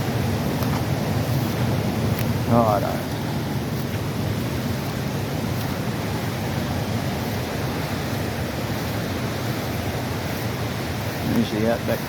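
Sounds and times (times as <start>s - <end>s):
flooded creek rushing: 0.0s - 12.0s.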